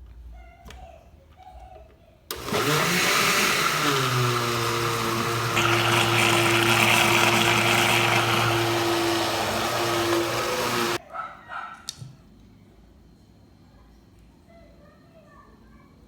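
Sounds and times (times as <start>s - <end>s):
kitchen blender running: 2.3s - 11.0s.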